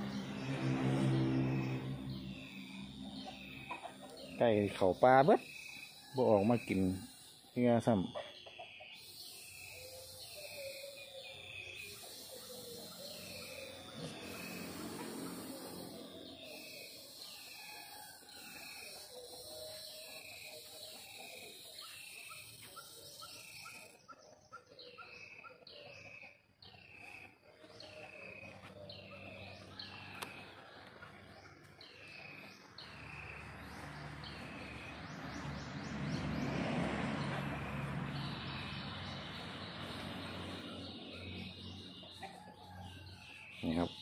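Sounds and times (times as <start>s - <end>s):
lower quicker chirps: 0.0s - 24.0s.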